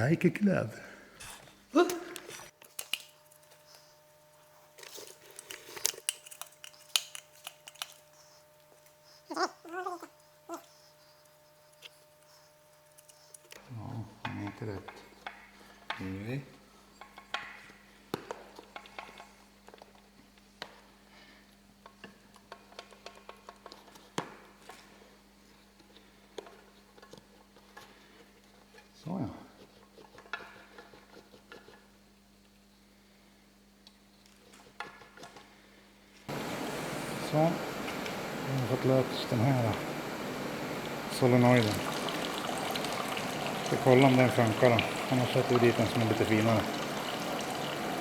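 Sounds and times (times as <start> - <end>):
faint steady hum: 36.2 - 48.0.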